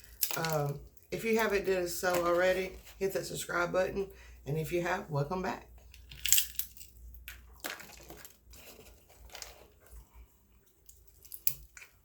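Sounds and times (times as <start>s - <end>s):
food packaging crinkling: 0.0s - 3.0s, 5.8s - 12.0s.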